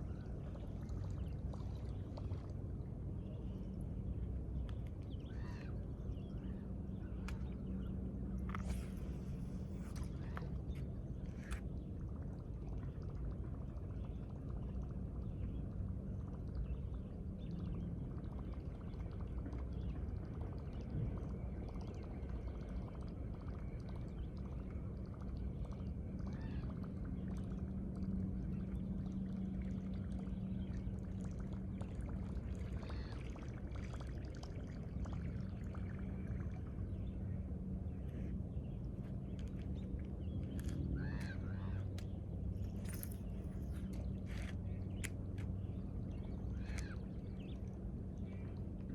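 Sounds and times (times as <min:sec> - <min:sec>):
low machinery hum: 0:00.0 - 0:48.9
water moving along bank: 0:00.0 - 0:48.9.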